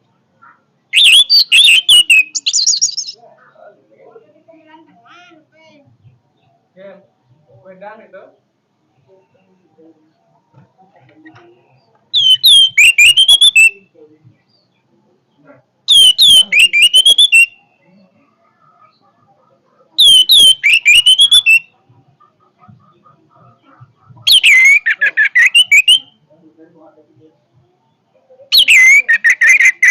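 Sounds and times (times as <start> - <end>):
thrush whistled song: 0.9 - 3.2, 12.2 - 13.8, 15.9 - 17.6, 20.0 - 21.7, 24.3 - 26.2, 28.5 - 29.9.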